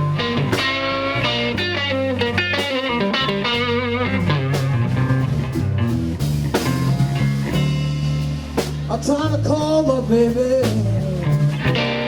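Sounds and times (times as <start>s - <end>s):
electric guitar lead fill: 0.0s - 12.0s
slow electric blues band: 0.0s - 12.0s
vocals: 8.8s - 12.0s.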